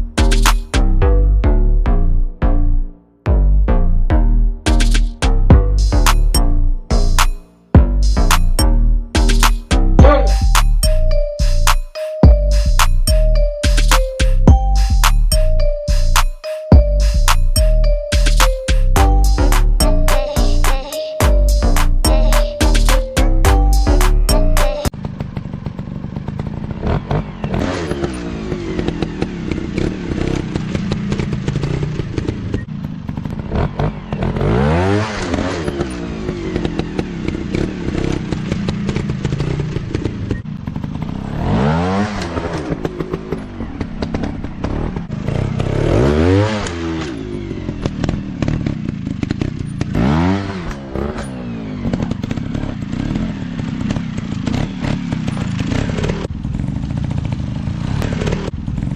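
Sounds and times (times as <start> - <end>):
dirt bike engines revving: 17.0 - 58.9.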